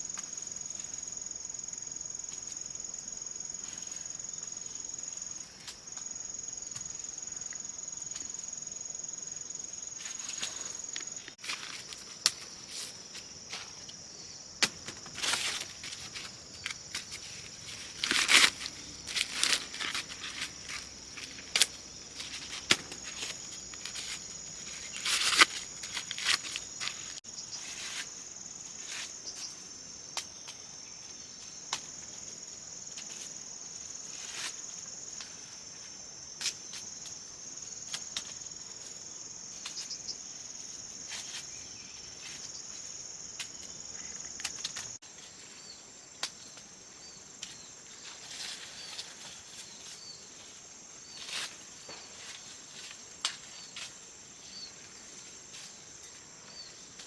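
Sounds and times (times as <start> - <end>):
insects chirring: 0.0 - 57.0
crunching and rustling: 14.6 - 28.2.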